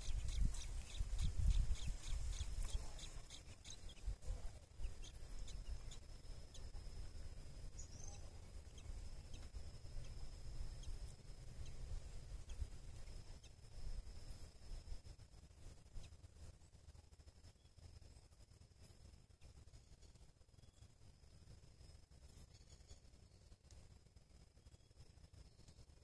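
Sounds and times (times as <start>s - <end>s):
high bird chirps: 0.0s - 6.8s, 7.7s - 13.6s
wind rumble on microphone: 0.0s - 16.1s.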